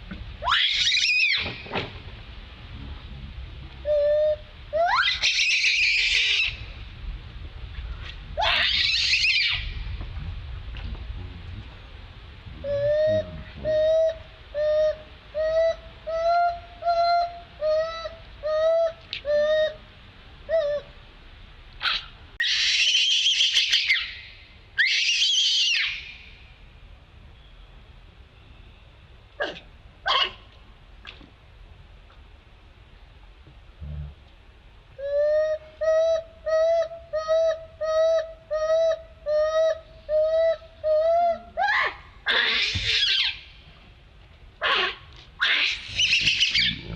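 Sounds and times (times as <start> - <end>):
monkey screaming: 0.4 - 1.6, 3.9 - 6.6, 8.4 - 9.8, 12.6 - 19.8, 21.8 - 26.2, 29.4 - 30.4, 35.0 - 43.5, 44.6 - 46.9
monkey hooting: 3.8 - 6.6, 8.4 - 9.7, 12.6 - 19.8, 20.5 - 20.9, 21.8 - 26.2, 35.0 - 43.5, 44.6 - 46.9.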